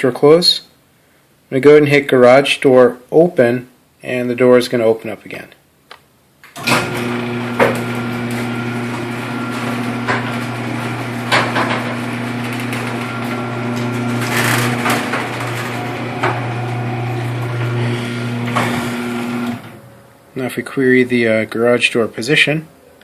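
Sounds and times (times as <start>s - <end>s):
garage door opener motor humming: 6.6s - 20.2s
door knocks and rattles: 8.8s - 19.7s.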